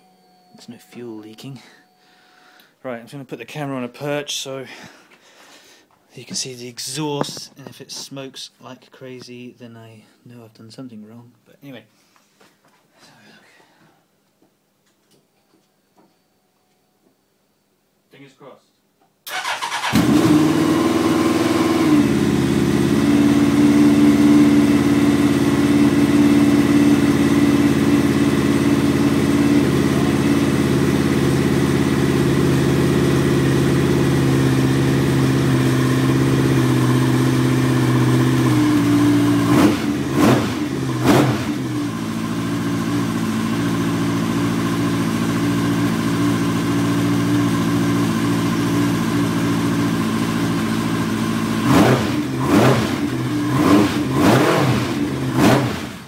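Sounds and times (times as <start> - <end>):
motorcycle engine idling: 19.4 - 51.6.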